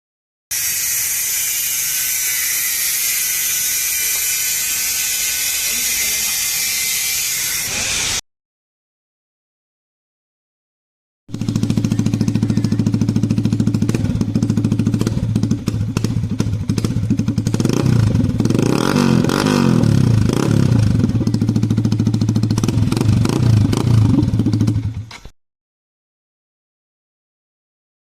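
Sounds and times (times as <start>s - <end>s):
motorcycle engine idling and revving: 11.3s - 25.4s.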